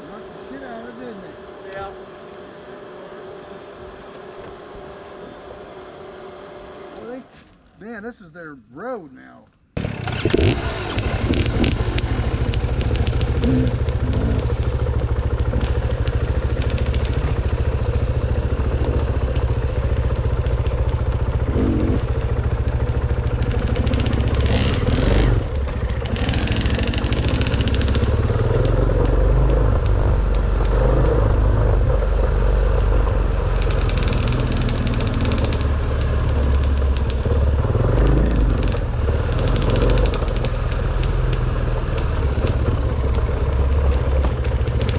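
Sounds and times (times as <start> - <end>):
dirt bike engine running: 9.8 - 44.9.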